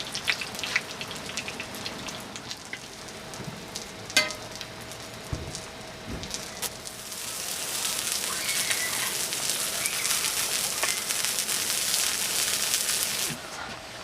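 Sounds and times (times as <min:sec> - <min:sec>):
heavy rain hissing: 0:01.8 - 0:13.5
faint high chirps: 0:08.3 - 0:09.1, 0:09.8 - 0:11.2.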